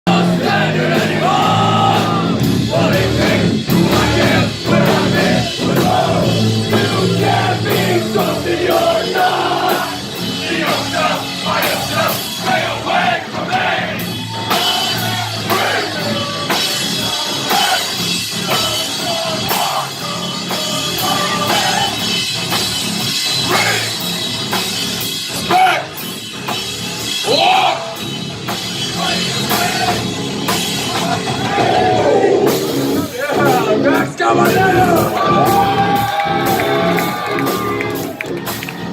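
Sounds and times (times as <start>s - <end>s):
person singing: 0.0s - 10.0s, 14.6s - 22.0s
distorted electric guitars: 0.1s - 38.9s
drum kit hits: 0.1s - 38.9s.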